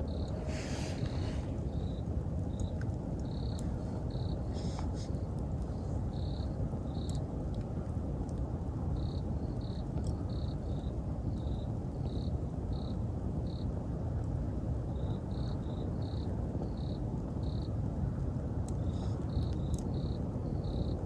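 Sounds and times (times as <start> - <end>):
insect chirping: 0.0 - 7.2
campfire crackling: 0.0 - 21.0.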